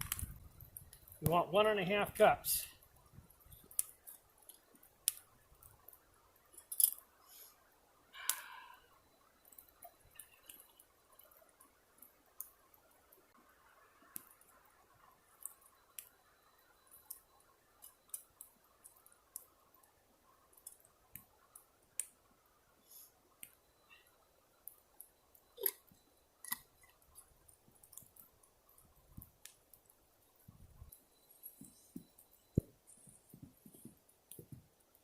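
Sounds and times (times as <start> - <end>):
campfire crackling and popping: 0.0 - 35.0.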